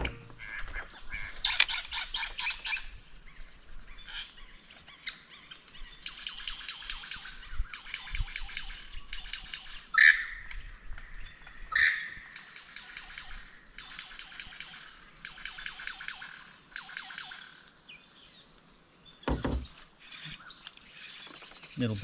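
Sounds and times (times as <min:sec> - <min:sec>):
birds chattering: 0:00.0 - 0:02.8, 0:03.4 - 0:22.0
bird squawk: 0:09.9 - 0:10.4, 0:11.7 - 0:17.6.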